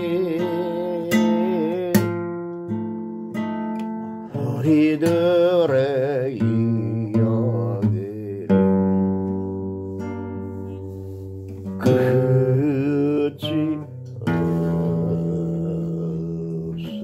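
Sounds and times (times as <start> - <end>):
person singing or humming: 0.0 - 2.3, 4.3 - 9.0, 11.8 - 17.0
acoustic guitar strumming: 0.0 - 17.0.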